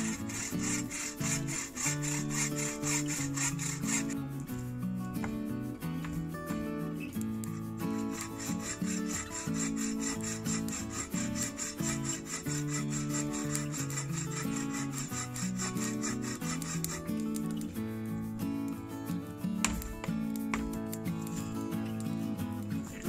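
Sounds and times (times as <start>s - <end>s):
saw cutting wood: 0.0s - 4.2s, 7.4s - 17.7s, 20.5s - 23.0s
background music: 0.0s - 23.0s.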